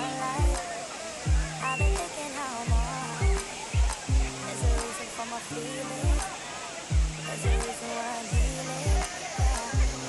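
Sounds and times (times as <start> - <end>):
pop music: 0.0 - 10.0
deep kick drum: 1.3 - 2.0, 2.7 - 4.8, 6.9 - 7.7, 8.4 - 10.0.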